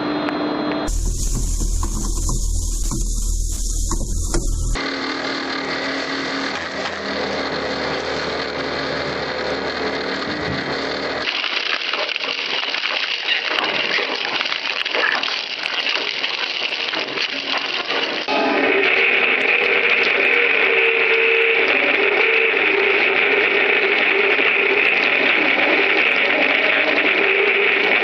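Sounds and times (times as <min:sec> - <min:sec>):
heavy machinery humming: 0:00.9 - 0:11.2, 0:18.3 - 0:26.0
machinery clatter: 0:00.9 - 0:11.3.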